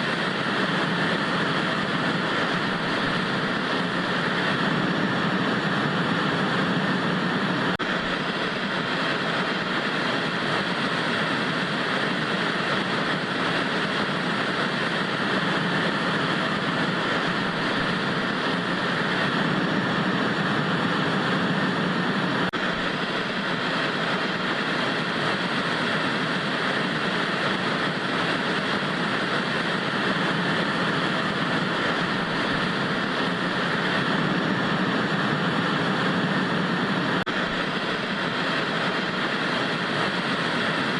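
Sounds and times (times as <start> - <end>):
tv static hiss: 0.0 - 40.9.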